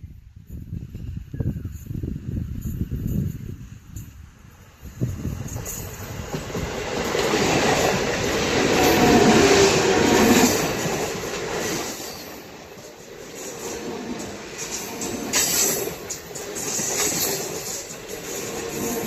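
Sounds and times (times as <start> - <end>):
train wheels on rails: 0.2 - 19.0.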